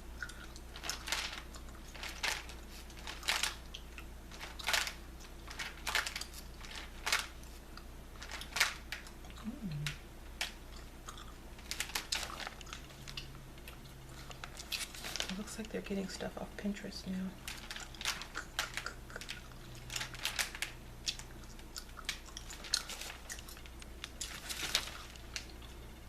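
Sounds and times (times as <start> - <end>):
gum chewing smacks: 0.2 - 0.7, 17.8 - 19.9, 21.0 - 24.3.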